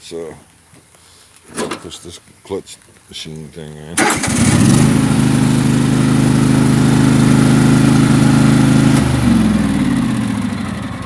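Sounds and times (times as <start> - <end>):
lawn tractor engine running: 1.5 - 2.0, 4.0 - 11.0.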